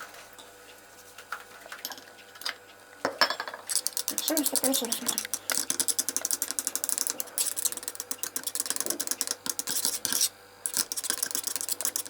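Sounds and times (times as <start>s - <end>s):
stick stirring liquid in container: 3.7s - 12.0s.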